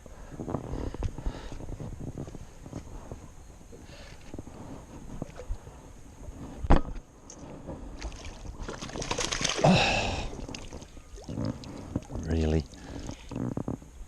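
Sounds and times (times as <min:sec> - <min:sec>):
handling noises on a boat: 0:00.4 - 0:09.6.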